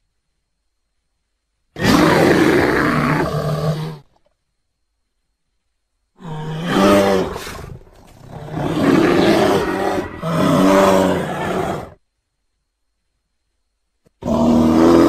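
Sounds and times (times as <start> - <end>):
bear roaring: 1.8 - 4.1, 6.2 - 12.0, 14.2 - 15.0.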